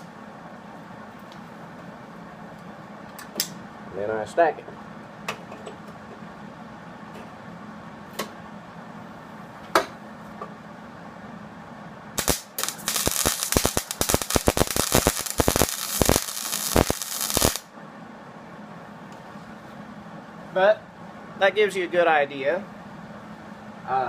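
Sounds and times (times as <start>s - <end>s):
welding arc crackling: 12.2s - 17.7s.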